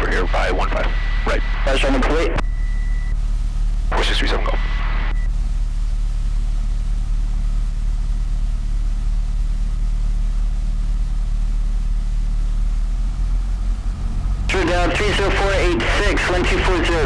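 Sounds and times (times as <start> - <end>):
aircraft piston engine humming: 12.6 - 17.0.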